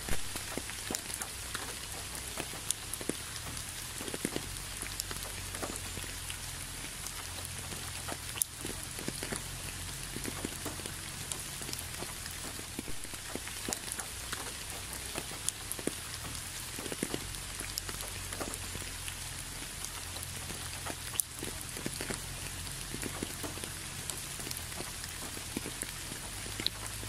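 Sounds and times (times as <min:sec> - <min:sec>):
close raindrops striking: 0:00.0 - 0:27.0
steady rain falling: 0:00.0 - 0:27.0.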